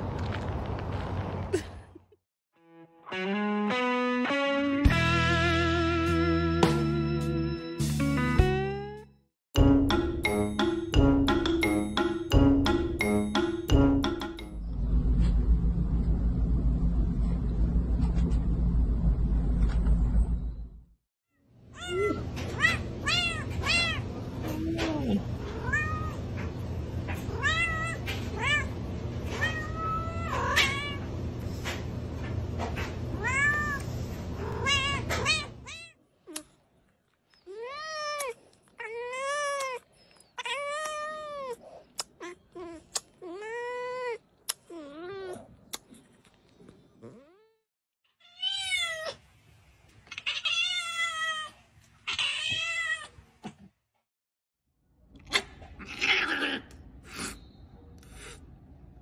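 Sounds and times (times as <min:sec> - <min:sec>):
steady low hum: 0:14.6 - 0:20.9.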